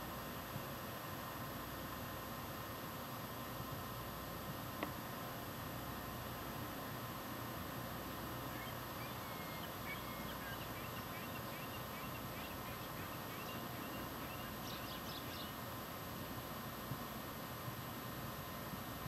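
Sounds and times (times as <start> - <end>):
steady hiss: 0.0 - 19.0
bird chirps: 8.5 - 15.6.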